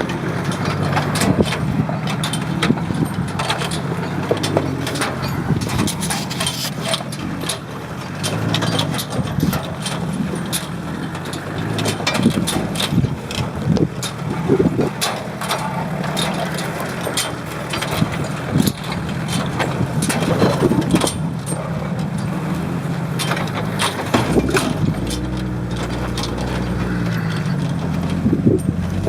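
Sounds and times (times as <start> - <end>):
vehicle engine running at low revs: 0.0 - 29.0
short knocks and clunks: 23.2 - 29.0.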